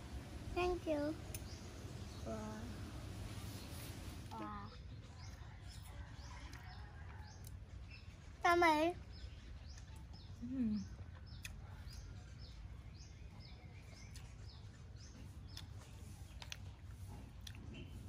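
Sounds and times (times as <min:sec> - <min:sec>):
small bird chirping: 0:00.6 - 0:18.0
low voiced hum: 0:10.3 - 0:12.9.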